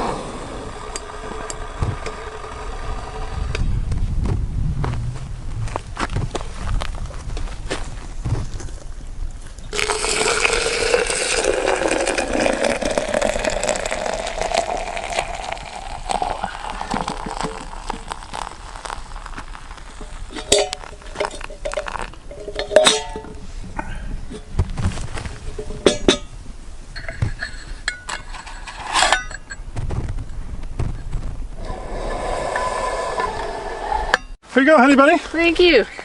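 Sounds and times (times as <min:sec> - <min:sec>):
hot liquid pouring into container: 0:09.7 - 0:22.3
cups clinking: 0:09.7 - 0:23.4.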